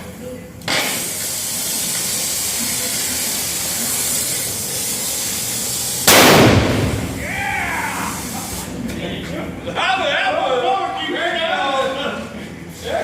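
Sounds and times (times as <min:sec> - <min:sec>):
gas hissing from nozzle: 0:00.7 - 0:08.8.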